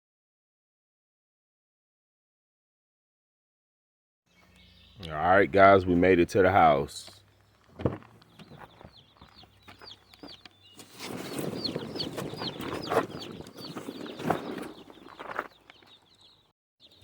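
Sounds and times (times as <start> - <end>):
chicks peeping: 4.4 - 17.0
rustling and scraping: 7.0 - 16.3.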